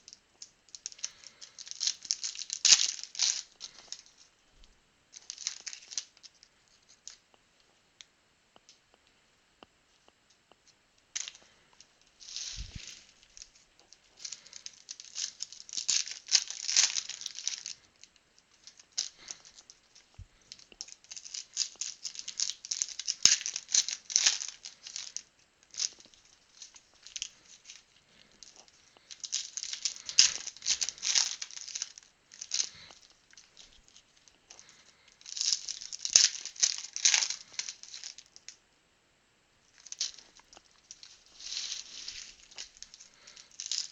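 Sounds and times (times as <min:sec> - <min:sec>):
card pack wrappers tearing and crinkling: 0:00.7 - 0:04.3, 0:05.2 - 0:06.4, 0:12.2 - 0:38.3, 0:39.8 - 0:43.9.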